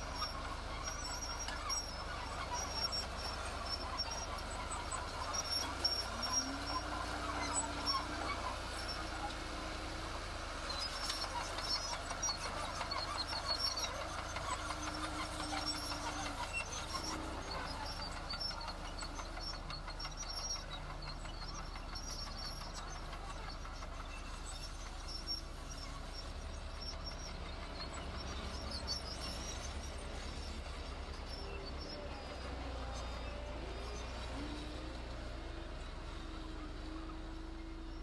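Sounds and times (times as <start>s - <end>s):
construction machinery engine drone: 0.0s - 38.0s.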